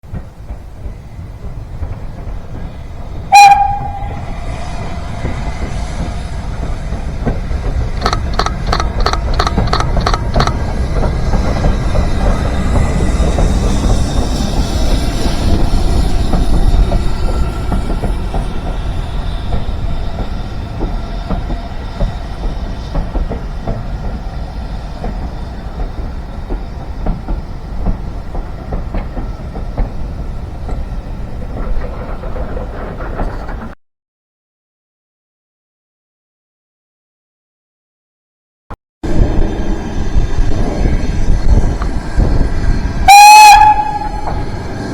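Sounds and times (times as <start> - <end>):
deep train rumble: 0.0 - 33.8, 39.0 - 44.9
steam train whistle: 3.3 - 5.7, 43.0 - 44.9
train wheels clicking: 5.2 - 33.8, 39.4 - 44.9.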